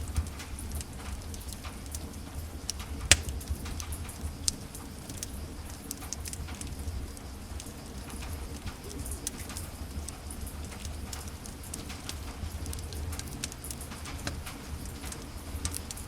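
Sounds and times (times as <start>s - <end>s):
wood fire crackling: 0.9s - 16.0s
loud fire pop: 3.1s - 3.4s.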